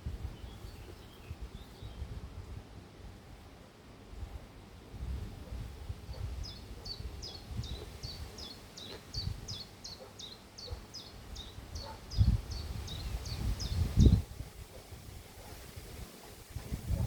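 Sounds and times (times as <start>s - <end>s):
small bird chirping: 6.4s - 14.2s.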